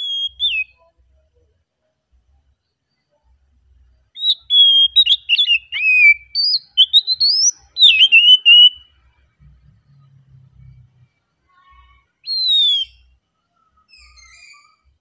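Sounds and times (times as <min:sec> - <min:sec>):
bird singing whistled phrases: 0:00.0 - 0:00.8, 0:04.2 - 0:08.9, 0:12.2 - 0:13.1.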